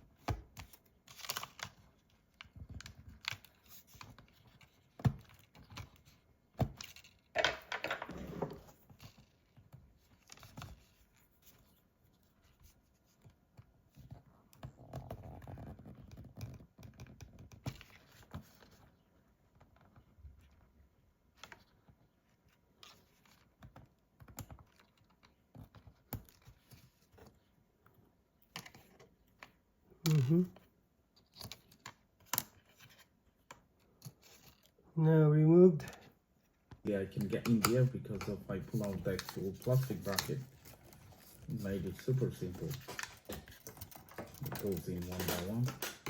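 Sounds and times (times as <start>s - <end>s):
tools clicking and scraping: 37.3s - 46.0s.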